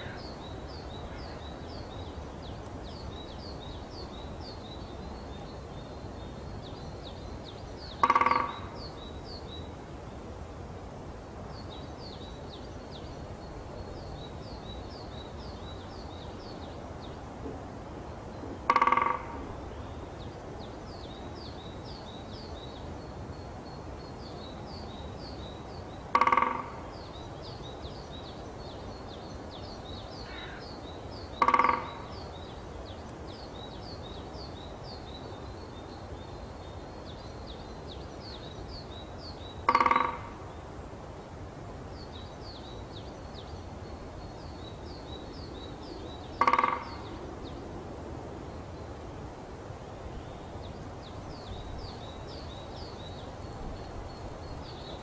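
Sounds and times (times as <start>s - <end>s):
bird's loud harsh call: 8.0s - 8.9s, 18.7s - 19.4s, 26.1s - 26.8s, 30.2s - 30.7s, 31.4s - 32.2s, 39.7s - 40.4s, 46.4s - 47.2s.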